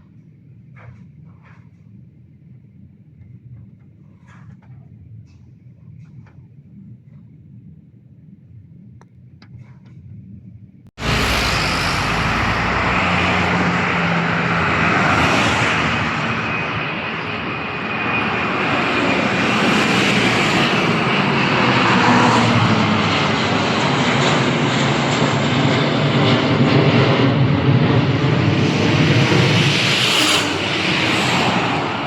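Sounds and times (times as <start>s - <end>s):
faint high whine: 11.0s - 18.7s
aircraft engines running: 11.0s - 32.0s.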